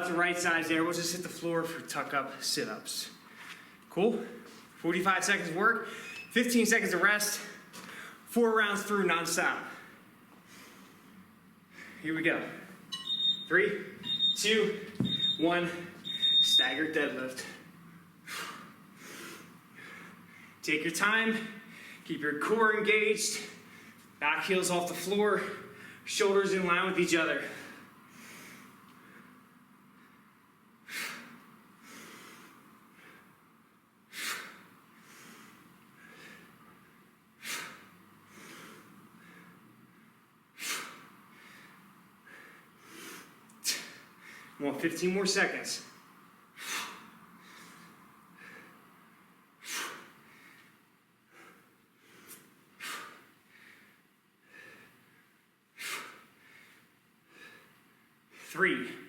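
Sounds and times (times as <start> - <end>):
quiet breaths: 7.3 - 8.3, 9.6 - 12.8, 17.4 - 20.6, 27.4 - 44.7, 45.9 - 59.0
man exhaling forcefully: 52.8 - 53.8, 55.8 - 56.7.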